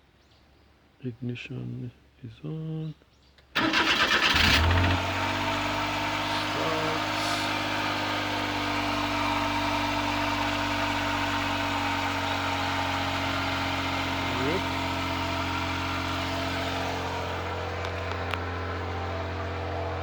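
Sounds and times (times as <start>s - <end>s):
engine cranking: 3.6s - 5.4s
small engine idling: 3.6s - 20.0s.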